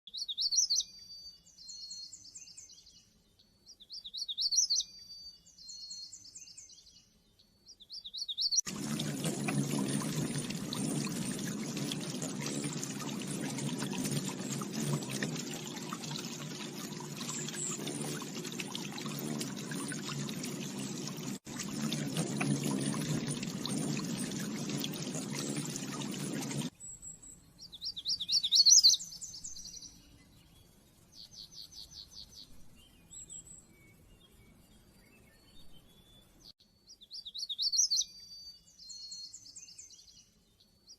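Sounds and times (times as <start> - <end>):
small bird trilling and chirping: 0.1 - 2.7, 3.7 - 6.9, 26.8 - 30.0, 36.9 - 40.1
running water rushing: 8.7 - 26.7.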